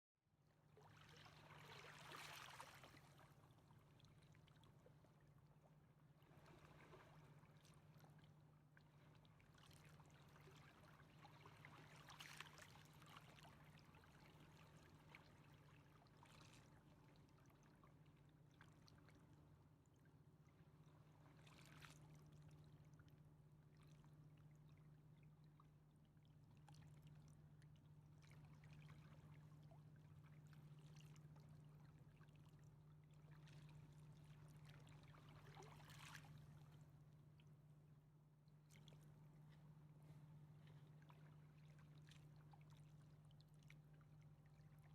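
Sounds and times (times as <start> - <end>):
river water lapping: 0.8 - 3.7, 28.2 - 37.0.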